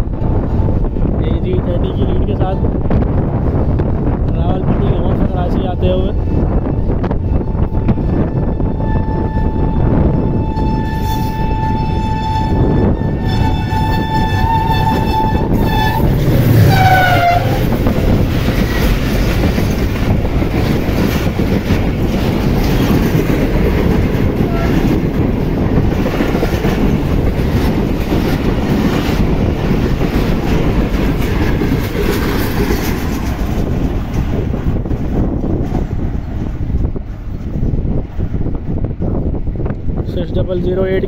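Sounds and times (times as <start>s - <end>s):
train coaches rumbling past: 0.0s - 40.8s
locomotive horn blasts: 6.4s - 17.8s, 24.4s - 24.9s.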